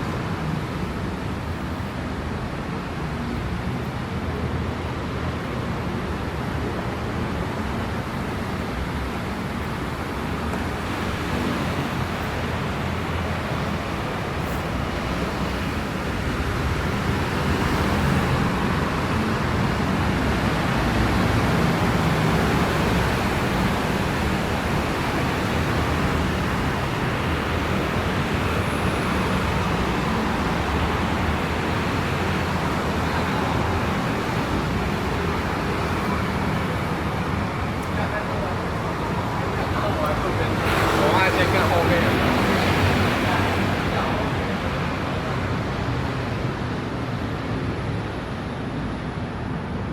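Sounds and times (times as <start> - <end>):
tyres hissing on wet road: 6.4 - 49.6.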